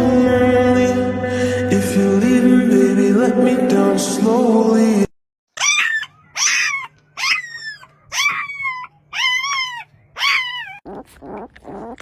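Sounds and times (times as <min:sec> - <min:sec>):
animal high-pitched cries: 0:05.6 - 0:12.0.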